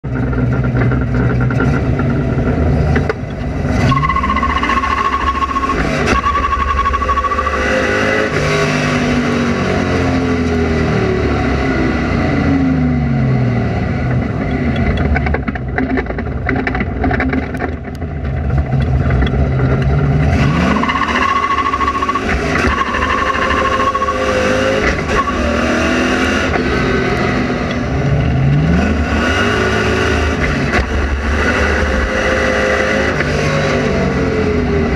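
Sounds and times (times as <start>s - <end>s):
car engine revving: 0.1s - 34.9s
high tyre squeal: 3.7s - 9.4s, 20.4s - 27.2s.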